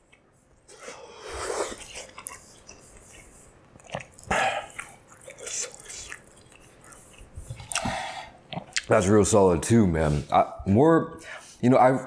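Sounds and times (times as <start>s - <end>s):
wet chewing mouth sounds: 0.0s - 9.0s.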